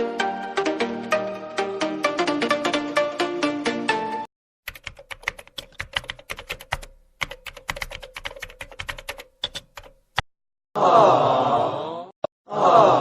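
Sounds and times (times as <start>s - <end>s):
typing on a keyboard: 4.7s - 10.0s.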